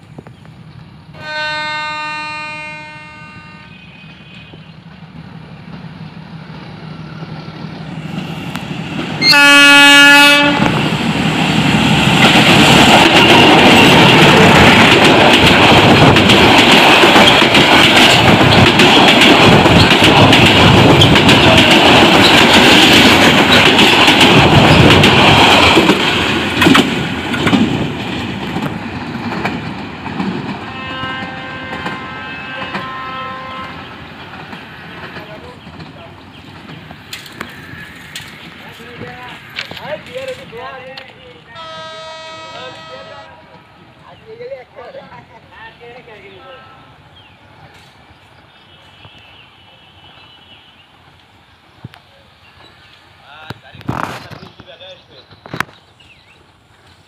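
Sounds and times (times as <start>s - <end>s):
train passing: 0.0s - 57.0s
train horn: 1.1s - 4.7s, 9.2s - 10.8s, 30.6s - 34.0s, 41.5s - 43.7s, 48.7s - 50.9s
wheels clicking over rails: 12.1s - 30.6s.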